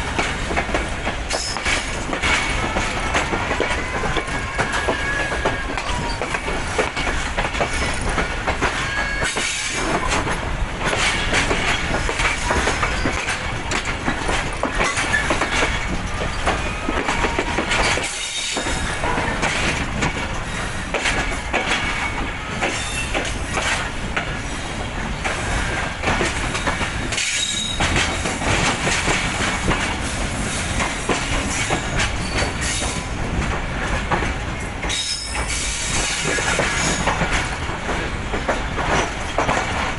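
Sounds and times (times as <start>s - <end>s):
train wheels clattering over rails: 0.0s - 39.9s
train wheels squealing: 1.3s - 2.0s, 3.7s - 10.2s, 11.1s - 13.5s, 14.7s - 19.4s, 20.3s - 20.9s, 21.8s - 23.9s, 26.4s - 28.3s, 31.4s - 33.1s, 34.9s - 37.4s.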